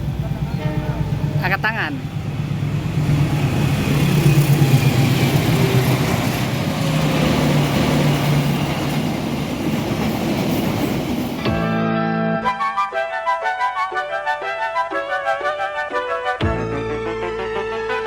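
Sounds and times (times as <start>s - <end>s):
vehicle engine humming: 0.0s - 9.2s.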